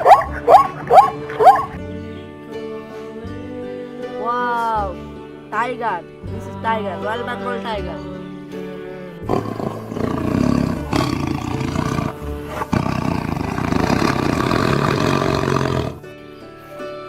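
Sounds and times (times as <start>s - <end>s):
background music: 0.0s - 17.0s
tiger roaring: 9.2s - 16.0s.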